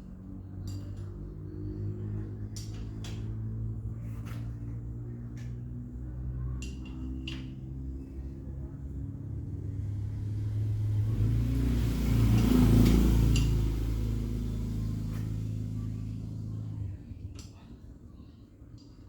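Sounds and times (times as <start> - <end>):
motorcycle engine running: 8.7 - 17.0.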